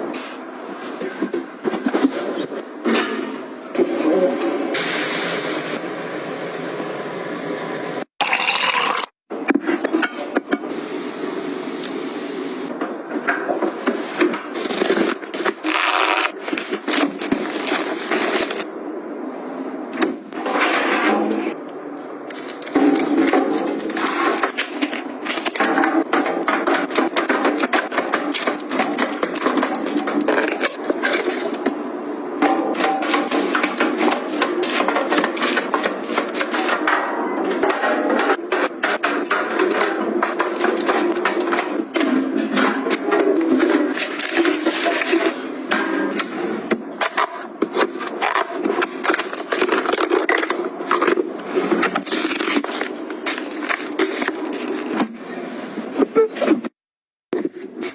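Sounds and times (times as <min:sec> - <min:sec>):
household items scraping and rubbing: 0:13.8 - 0:18.7, 0:20.4 - 0:31.8, 0:32.7 - 0:36.9, 0:37.6 - 0:56.8.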